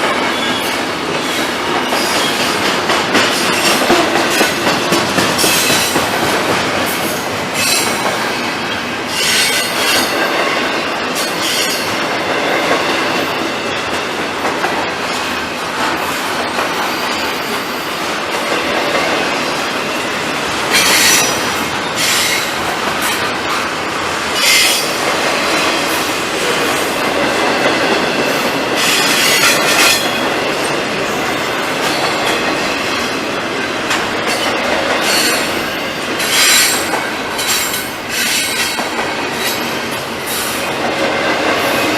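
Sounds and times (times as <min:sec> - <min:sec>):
freight train rolling past: 0:00.0 - 0:41.9.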